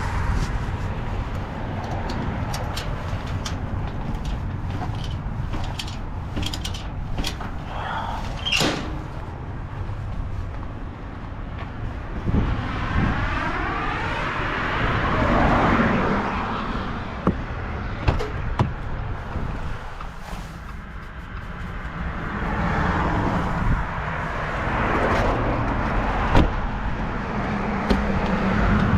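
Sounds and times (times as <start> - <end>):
vehicle engine rumble: 0.0 - 28.9
clicks and knocks: 1.8 - 7.6
vehicle whooshing past: 12.2 - 17.1.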